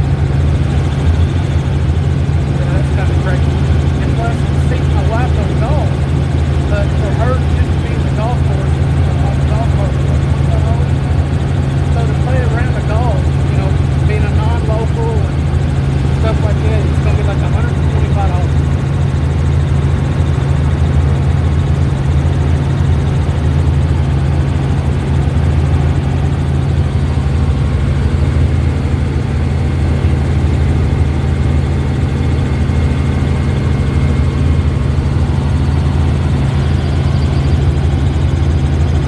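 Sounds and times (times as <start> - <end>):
helicopter rotor and engine drone: 0.0 - 39.0.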